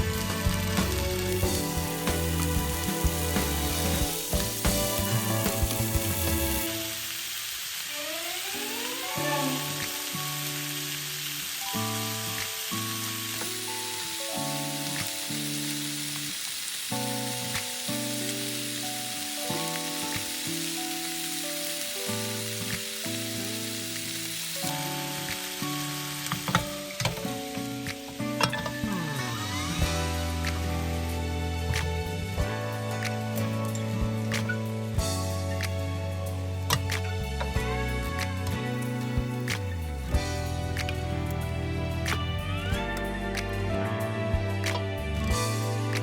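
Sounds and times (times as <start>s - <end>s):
chicken sizzling in a pan: 0.0s - 32.1s
background music melody: 0.0s - 46.0s.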